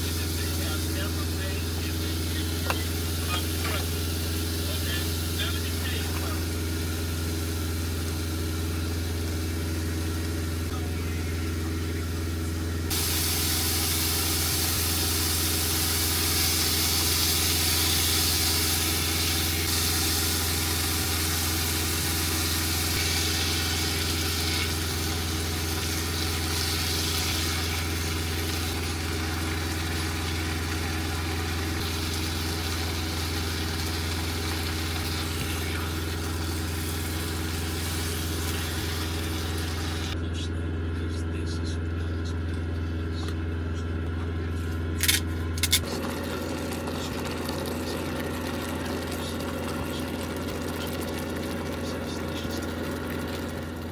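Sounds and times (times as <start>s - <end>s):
food sizzling in a hot pan: 12.9s - 35.3s.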